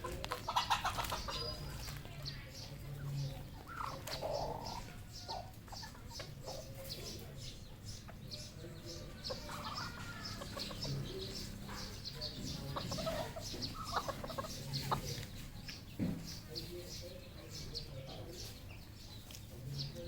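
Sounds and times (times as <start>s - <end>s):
junglefowl clucking: 0.0s - 1.9s, 3.4s - 7.0s, 9.2s - 15.3s.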